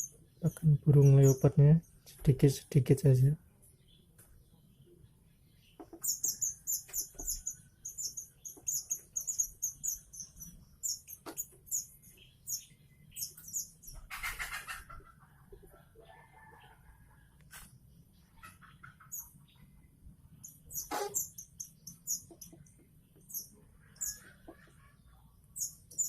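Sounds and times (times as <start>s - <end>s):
chick begging chirps: 13.2s - 16.7s, 18.3s - 19.7s, 23.3s - 26.0s.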